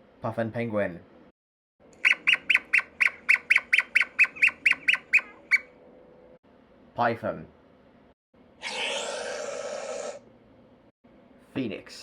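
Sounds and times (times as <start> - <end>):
bird squawking: 2.0 - 5.7.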